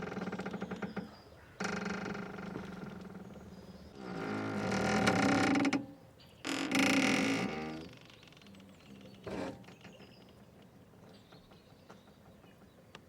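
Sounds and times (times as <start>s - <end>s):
boat rope creaking: 0.0s - 10.1s.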